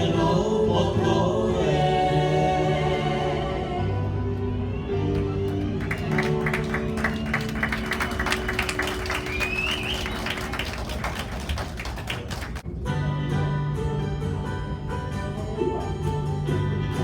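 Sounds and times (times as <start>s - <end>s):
audience clapping: 5.0s - 12.6s.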